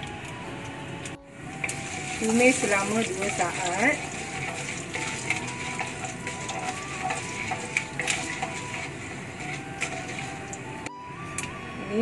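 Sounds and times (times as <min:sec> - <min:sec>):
seeds sizzling in oil: 0:00.0 - 0:10.9
wooden spatula stirring: 0:01.4 - 0:10.9.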